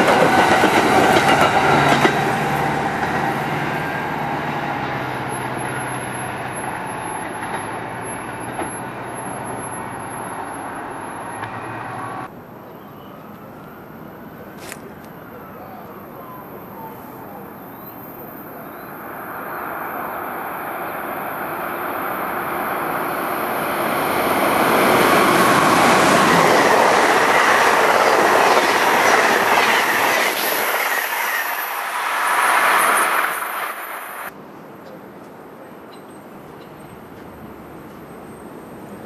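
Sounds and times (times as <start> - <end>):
electric train passing at speed: 0.0 - 12.7, 16.2 - 34.6.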